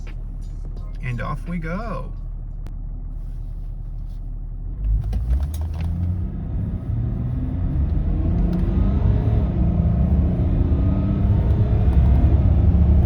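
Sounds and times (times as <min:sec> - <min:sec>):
car engine accelerating hard: 0:04.6 - 0:13.0.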